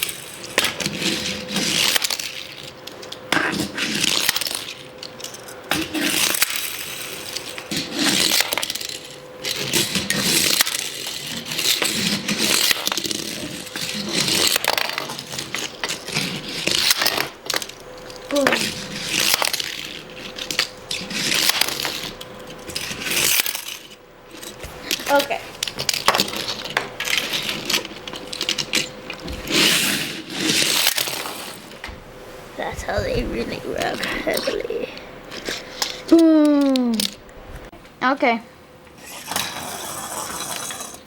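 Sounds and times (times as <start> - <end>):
toy cars rolling on a track: 0.0 - 31.8, 39.0 - 41.0
toy cars crashing: 0.1 - 28.9, 29.5 - 31.7, 39.0 - 41.0
faint steady hum: 31.0 - 39.0.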